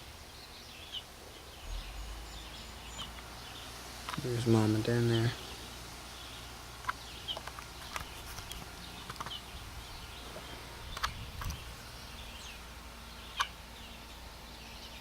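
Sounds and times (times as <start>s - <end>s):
bird chirps: 0.0s - 15.0s.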